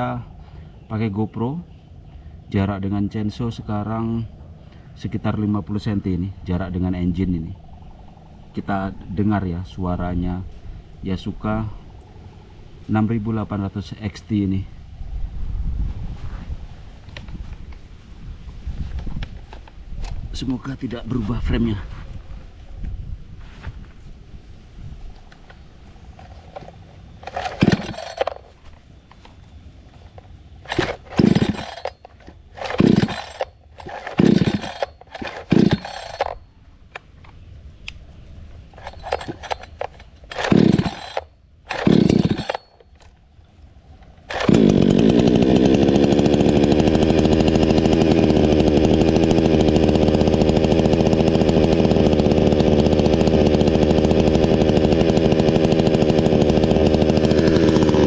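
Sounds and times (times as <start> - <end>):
chainsaw engine coughing and running: 26.1 - 29.3, 29.9 - 36.4, 38.6 - 43.1, 44.0 - 58.0.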